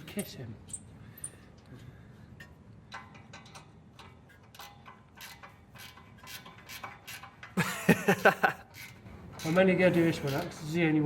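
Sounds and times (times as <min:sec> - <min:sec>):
ratchet spanner clicking: 0:02.4 - 0:07.6, 0:08.7 - 0:10.7.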